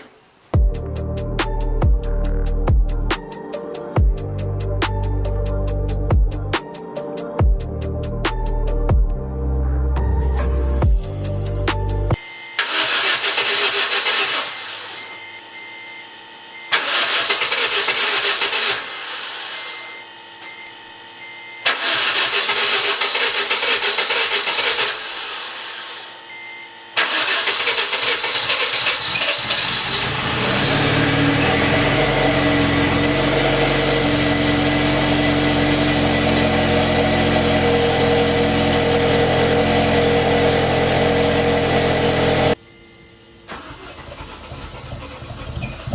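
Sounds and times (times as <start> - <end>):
starter motor cranking engine: 12.6 - 14.8, 16.7 - 19.4, 21.6 - 25.9, 27.0 - 42.6, 43.5 - 45.9
car engine idling: 27.0 - 42.6, 43.5 - 45.9.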